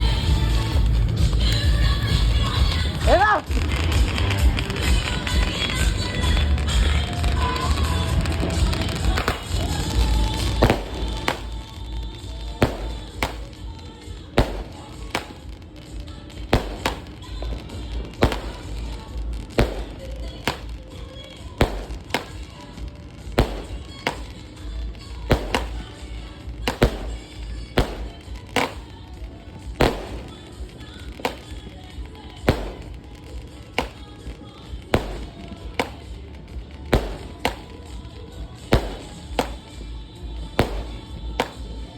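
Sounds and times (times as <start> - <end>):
low rumble: 0.0 - 31.2
fireworks bangs: 0.0 - 41.9.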